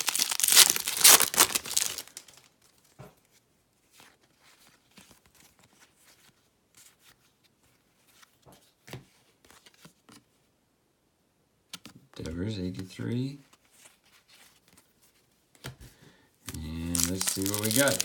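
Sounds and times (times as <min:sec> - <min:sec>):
wrapper tearing and crinkling: 0:00.0 - 0:02.5, 0:16.5 - 0:18.0
cards rustling and clicking: 0:00.0 - 0:03.0, 0:16.5 - 0:18.0.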